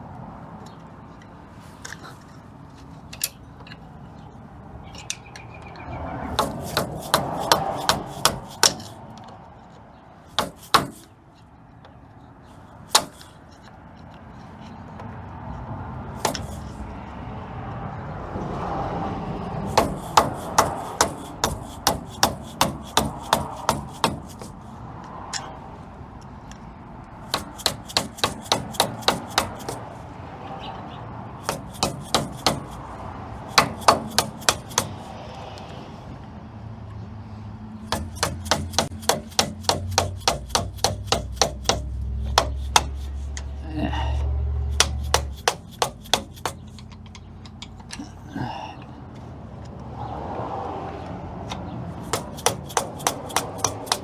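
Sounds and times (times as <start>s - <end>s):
hammer striking a screwdriver: 6.4s - 9.0s, 10.4s - 11.1s, 12.9s - 13.3s, 16.2s - 16.8s, 19.7s - 24.6s, 27.3s - 29.9s, 31.4s - 32.9s, 33.5s - 35.1s, 37.9s - 43.3s, 44.7s - 46.9s, 52.0s - 54.0s.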